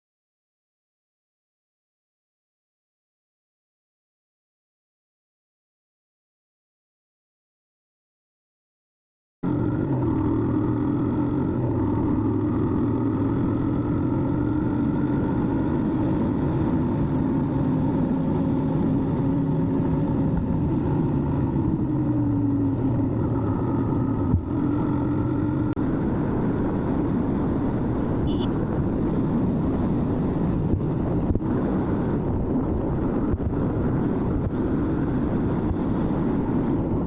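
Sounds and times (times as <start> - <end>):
motorcycle engine cruising: 9.4 - 37.0.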